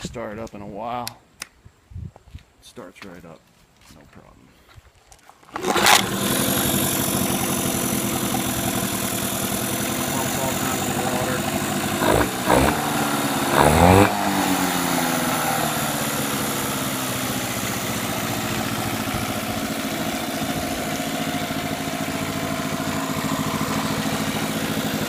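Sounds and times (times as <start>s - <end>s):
outboard motor revving and idling: 5.5s - 25.0s.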